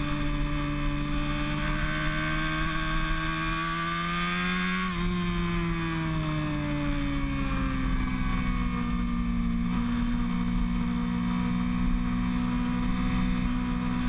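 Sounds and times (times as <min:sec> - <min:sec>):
motorcycle engine at high revs: 0:00.0 - 0:14.0
wind and road noise: 0:00.0 - 0:14.0.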